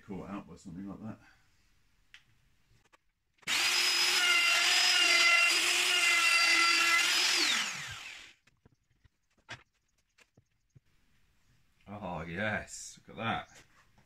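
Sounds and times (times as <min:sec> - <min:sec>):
electric router whining: 0:03.5 - 0:08.4.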